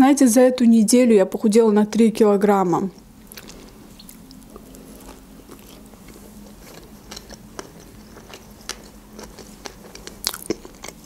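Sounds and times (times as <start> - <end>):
faint low hum: 0.0 - 11.0
chewing with mouth clicks: 3.0 - 11.0.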